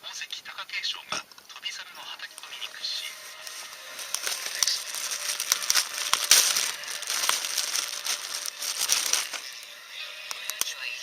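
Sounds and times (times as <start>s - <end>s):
crinkling and rustling with clicks: 2.2s - 9.7s.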